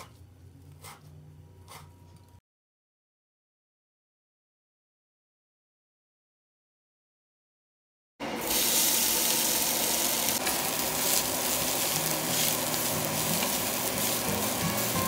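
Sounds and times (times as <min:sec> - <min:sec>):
greens sizzling in hot oil: 0:08.4 - 0:15.0.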